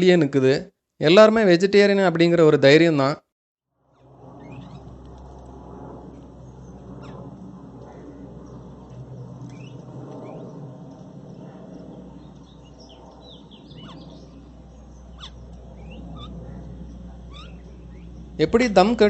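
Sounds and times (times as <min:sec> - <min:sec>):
low background rumble: 0:03.8 - 0:19.0
birds chirping: 0:04.0 - 0:19.0.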